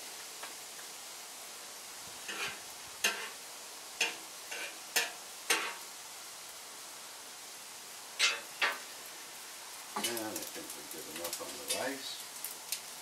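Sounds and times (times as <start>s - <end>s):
food sizzling on a grill: 0.0s - 13.0s
utensil scraping cookware: 2.3s - 3.4s, 4.0s - 5.8s, 8.2s - 8.8s.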